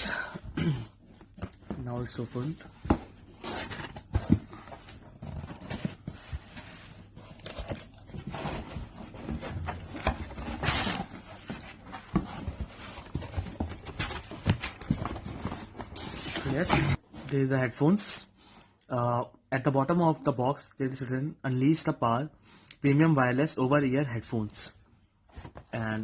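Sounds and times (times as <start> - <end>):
cardboard box rustling and scraping: 1.6 - 17.0.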